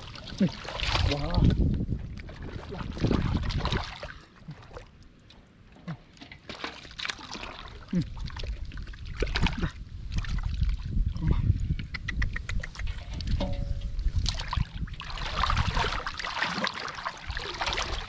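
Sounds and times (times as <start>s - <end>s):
wind rumble on microphone: 0.0s - 4.8s, 7.8s - 16.2s
muddy water sloshing and splashing: 0.0s - 11.7s, 12.5s - 18.0s.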